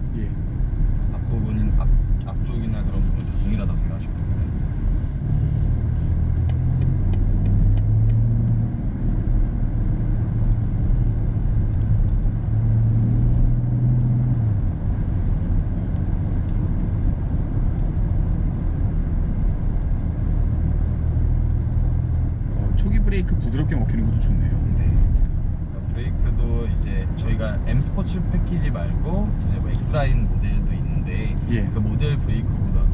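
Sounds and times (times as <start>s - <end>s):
diesel engine accelerating: 0.0s - 32.9s
road and tyre noise: 0.0s - 32.9s.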